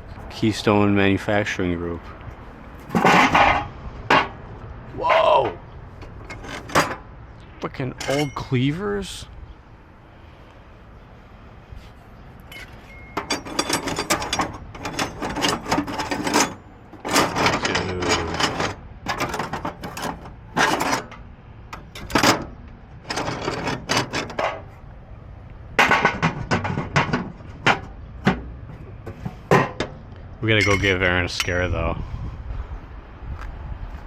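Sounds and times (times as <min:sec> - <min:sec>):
metal tools clattering in toolbox: 0:02.8 - 0:04.2, 0:06.0 - 0:07.0, 0:08.0 - 0:08.6, 0:12.5 - 0:21.2, 0:21.8 - 0:22.5, 0:23.1 - 0:24.6, 0:30.5 - 0:31.6.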